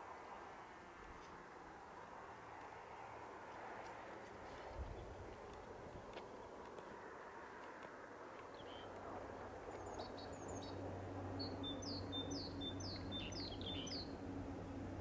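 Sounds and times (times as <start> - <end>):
low steady drone: 8.8 - 15.0
songbird chirping: 9.7 - 14.9.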